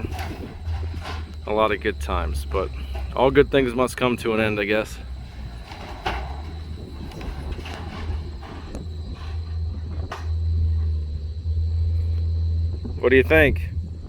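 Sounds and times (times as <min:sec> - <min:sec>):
heavy machinery engine rumble: 0:00.0 - 0:14.0
knocks and cracks: 0:05.0 - 0:10.5.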